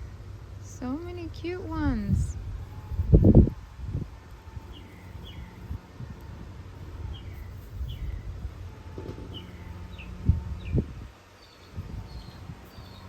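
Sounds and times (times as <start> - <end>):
small bird chirping: 4.6 - 13.0.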